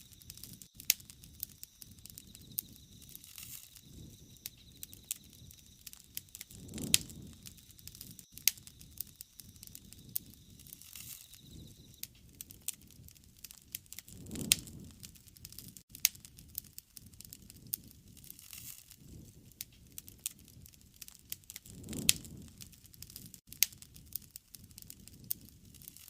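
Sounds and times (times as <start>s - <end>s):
flames fluttering: 0.0s - 26.0s.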